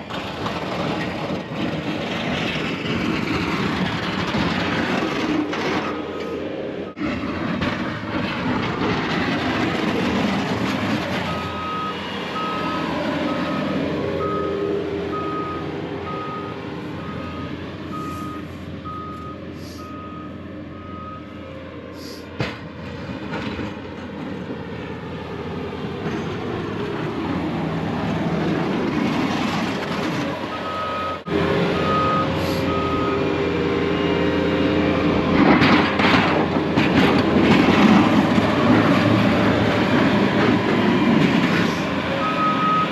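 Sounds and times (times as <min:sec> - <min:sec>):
truck engine running: 0:00.0 - 0:42.9
backup alarm beeping: 0:11.3 - 0:21.2, 0:30.5 - 0:33.3.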